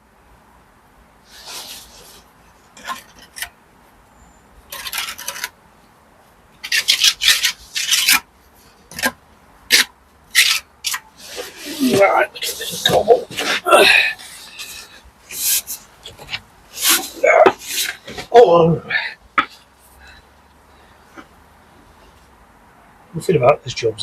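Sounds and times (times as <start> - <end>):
trowel scraping brick and mortar: 2.8 - 3.5, 4.7 - 5.6, 6.6 - 8.3, 8.9 - 18.3.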